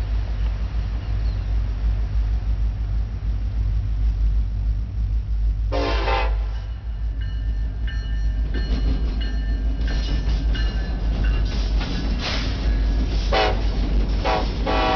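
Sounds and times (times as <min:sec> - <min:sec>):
diesel locomotives passing: 0:00.0 - 0:14.9
train horn blast: 0:05.7 - 0:06.8, 0:13.3 - 0:14.9.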